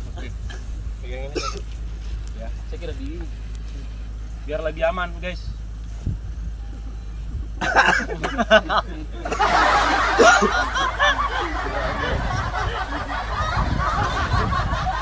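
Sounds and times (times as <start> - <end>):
voices chattering: 6.5 - 15.0
men laughing: 7.6 - 15.0.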